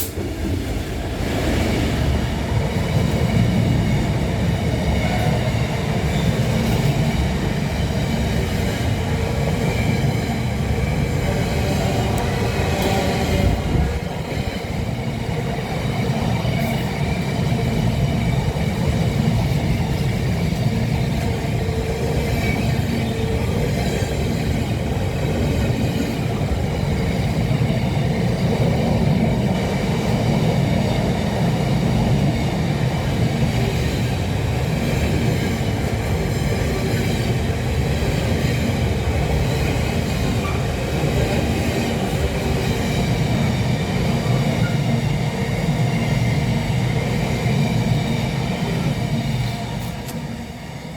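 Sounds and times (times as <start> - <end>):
train rumbling: 0.0 - 50.9.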